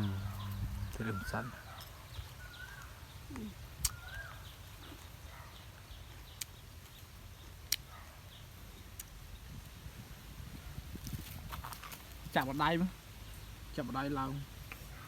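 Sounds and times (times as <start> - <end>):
low background rumble: 0.0 - 1.4
small birds chirping: 0.0 - 10.8, 12.1 - 15.0.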